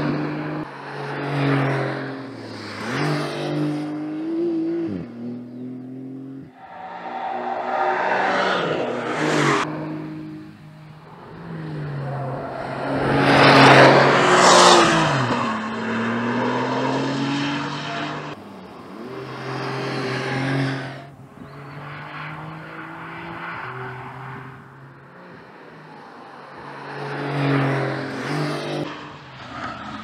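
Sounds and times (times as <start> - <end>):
car engine revving: 0.2 - 21.1.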